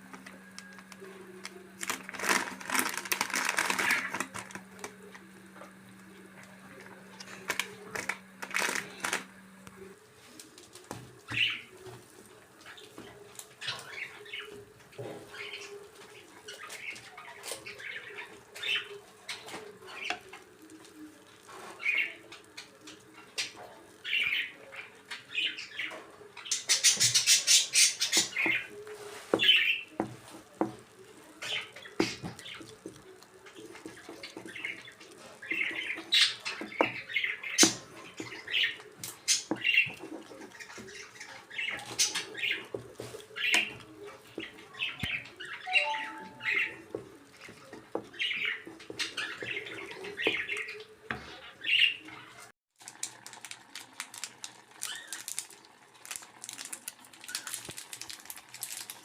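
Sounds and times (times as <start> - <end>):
bird chirping and squawking: 44.8 - 46.9.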